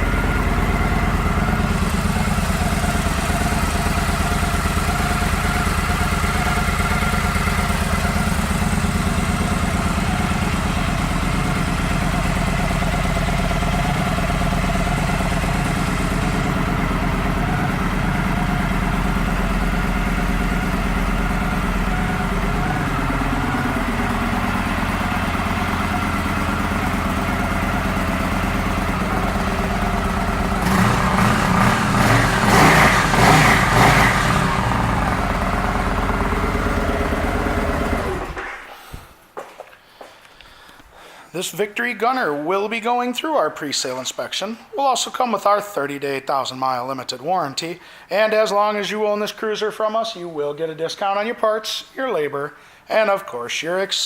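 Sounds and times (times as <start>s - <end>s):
engine revving: 0.0s - 38.5s
motorcycle engine idling: 0.0s - 38.5s.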